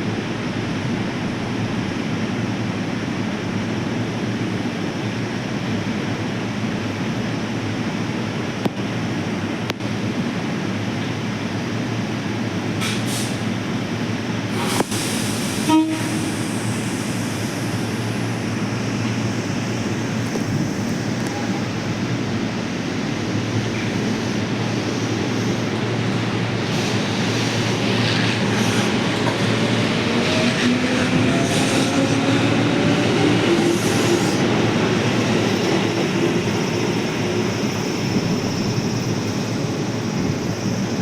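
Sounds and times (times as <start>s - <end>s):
electric train motors humming: 15.4s - 41.0s.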